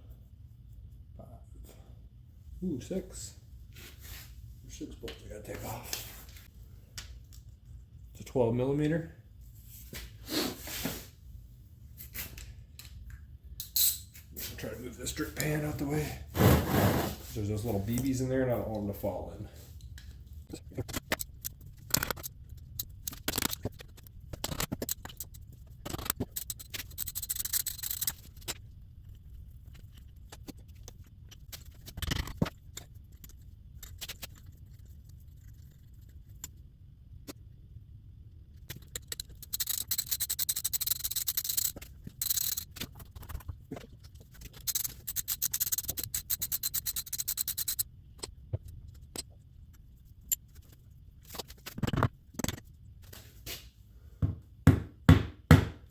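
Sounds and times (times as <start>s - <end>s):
metal clinks and scrapes: 13.6s - 14.6s, 38.7s - 43.5s, 44.3s - 47.9s
wrench clicking: 38.8s - 42.7s, 44.6s - 47.8s.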